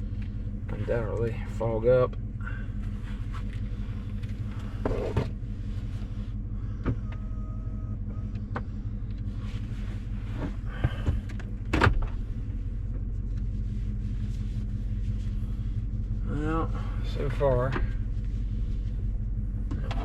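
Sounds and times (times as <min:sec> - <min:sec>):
truck idling hum: 0:00.0 - 0:20.0.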